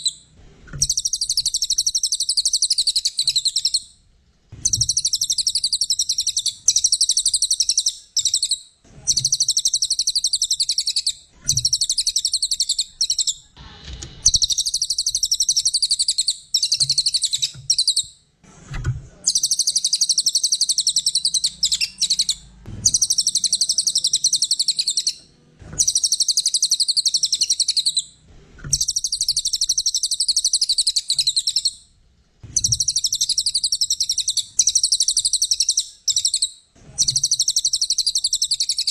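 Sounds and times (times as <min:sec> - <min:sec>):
songbird singing high chirps: 0:00.8 - 0:03.8, 0:04.6 - 0:13.4, 0:19.3 - 0:25.2, 0:25.8 - 0:28.1, 0:32.6 - 0:38.9.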